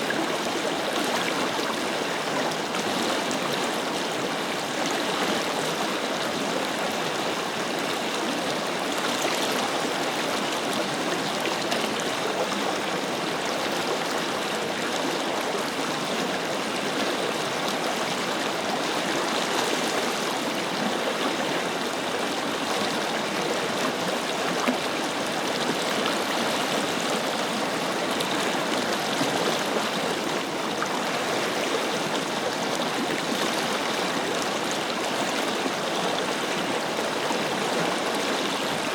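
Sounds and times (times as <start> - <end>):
river flowing: 0.0 - 38.9.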